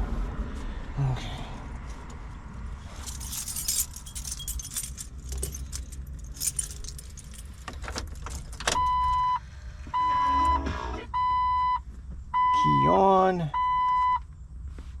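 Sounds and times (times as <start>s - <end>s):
keys jangling: 2.9s - 8.7s
car warning chime beeps: 8.8s - 11.8s, 12.4s - 14.2s.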